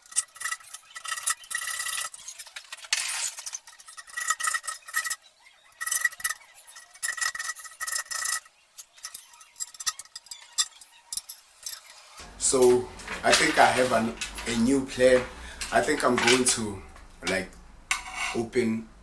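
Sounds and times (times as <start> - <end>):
hand tool scraping thin metal: 0.0 - 12.2, 17.9 - 18.4
thin metallic squeal: 0.0 - 12.2.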